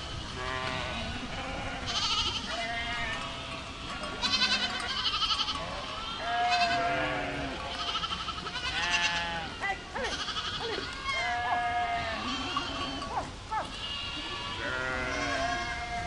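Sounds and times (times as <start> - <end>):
goats bleating: 0.0 - 16.0.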